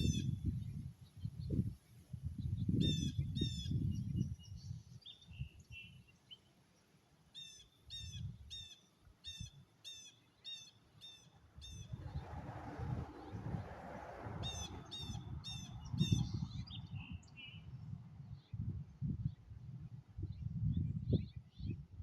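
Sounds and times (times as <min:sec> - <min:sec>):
low rumbling: 0:11.8 - 0:17.1
rushing noise: 0:11.9 - 0:15.5.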